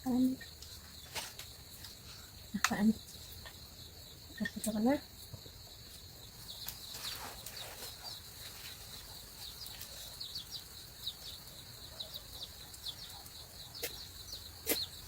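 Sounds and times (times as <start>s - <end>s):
insects droning: 0.0s - 15.0s
chicks peeping: 5.6s - 15.0s.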